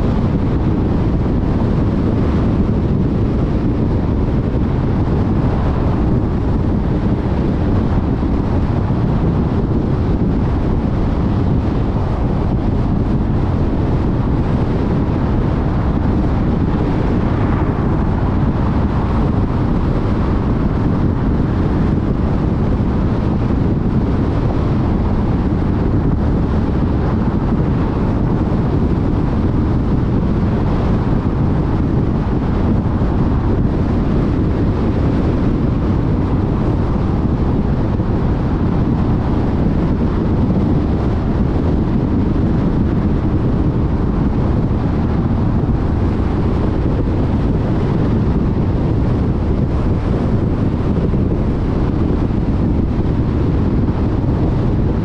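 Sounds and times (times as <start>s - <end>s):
wind rush: 0.0s - 55.0s.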